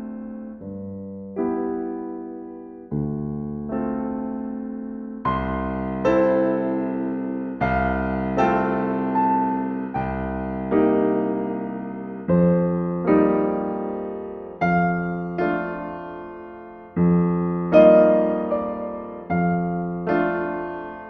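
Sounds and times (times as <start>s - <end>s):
slow solo piano chords: 0.0s - 21.0s.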